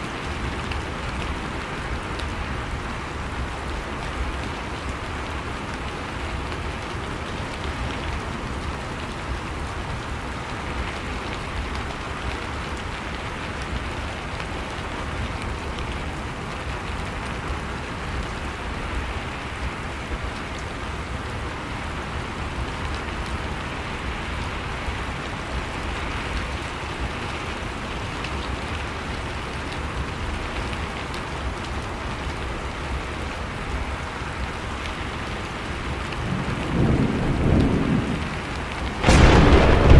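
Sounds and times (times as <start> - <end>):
heavy rain pattering: 0.0 - 39.9
low rumble: 39.0 - 39.9.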